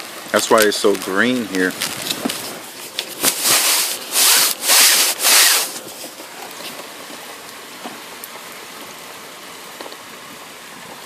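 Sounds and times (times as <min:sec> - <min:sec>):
rain hiss: 0:00.0 - 0:11.0
rubbing or scraping bursts: 0:01.8 - 0:06.2.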